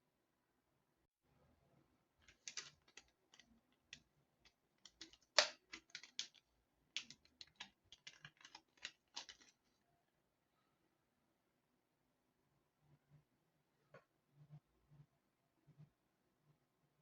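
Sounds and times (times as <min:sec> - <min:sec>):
light clicks and taps: 0:04.8 - 0:06.4, 0:07.0 - 0:09.6.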